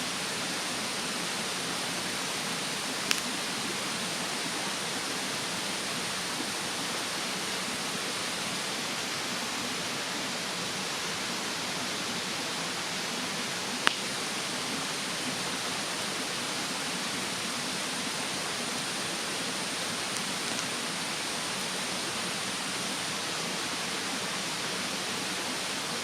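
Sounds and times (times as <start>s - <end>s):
mountain stream rushing: 0.0s - 26.0s
wood fire pop: 3.1s - 3.3s, 13.8s - 14.1s.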